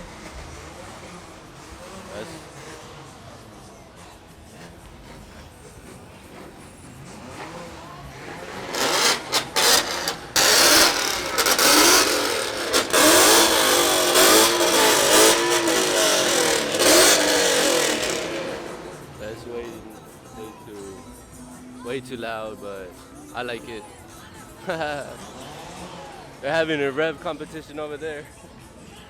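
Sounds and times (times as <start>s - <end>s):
car engine revving hard: 4.6s - 19.2s.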